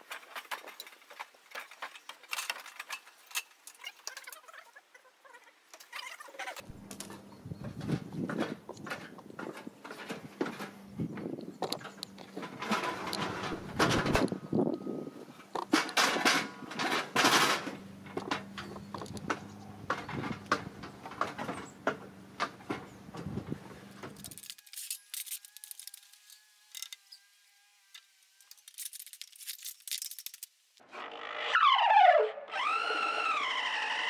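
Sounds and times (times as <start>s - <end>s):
knocks and rattles on wood: 15.6s - 24.3s.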